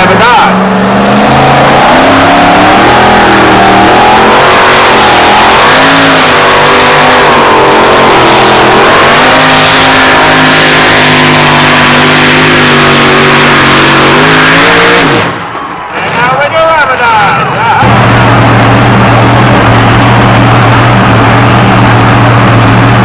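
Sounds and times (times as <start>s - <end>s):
truck engine at high revs: 0.0s - 23.0s.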